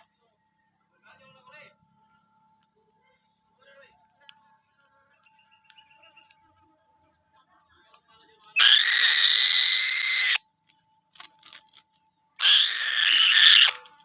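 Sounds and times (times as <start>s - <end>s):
falcon screeching: 8.6s - 10.4s, 12.4s - 14.0s.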